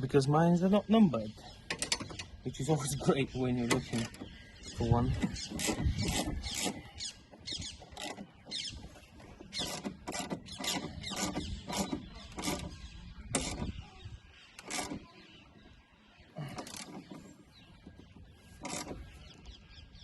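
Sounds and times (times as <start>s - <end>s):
spanner scraping and clicking on nut: 1.7s - 2.4s, 5.1s - 7.0s, 9.5s - 13.7s, 18.6s - 19.1s.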